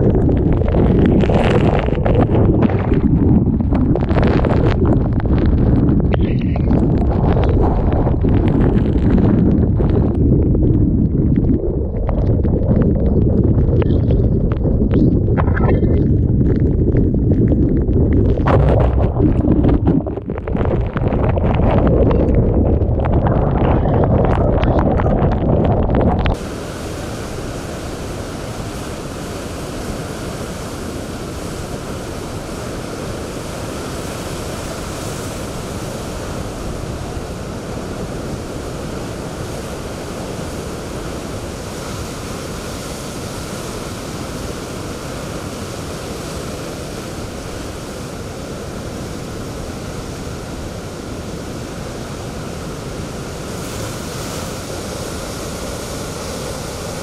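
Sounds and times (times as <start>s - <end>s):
wind buffeting microphone: 0.0s - 43.8s
strong wind: 0.0s - 57.0s
waves breaking: 18.2s - 57.0s.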